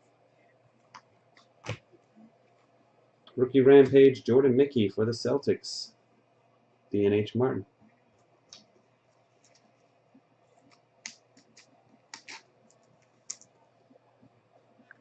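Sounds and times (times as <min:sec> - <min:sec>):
trading cards clicking and scraping: 0:10.6 - 0:13.4.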